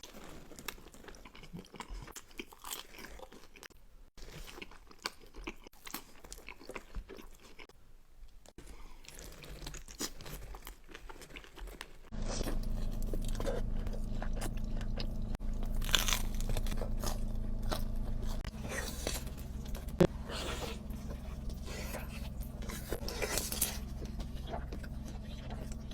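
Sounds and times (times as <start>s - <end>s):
chewing and crunching bites: 0.0s - 7.8s, 8.4s - 25.9s
steady low hum: 12.1s - 25.9s.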